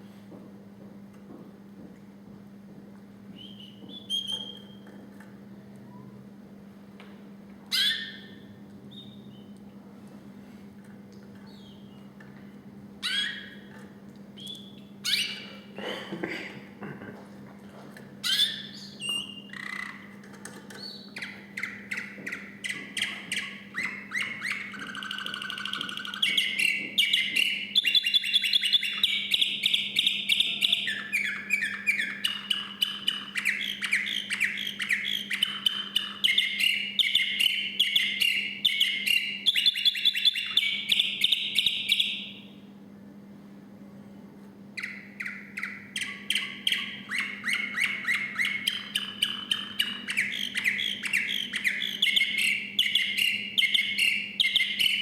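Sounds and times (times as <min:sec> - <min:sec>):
canary singing trills: 0:03.4 - 0:05.0, 0:07.7 - 0:09.6, 0:11.5 - 0:12.1, 0:13.0 - 0:13.8, 0:14.4 - 0:15.7, 0:18.2 - 0:42.6, 0:44.8 - 0:55.0.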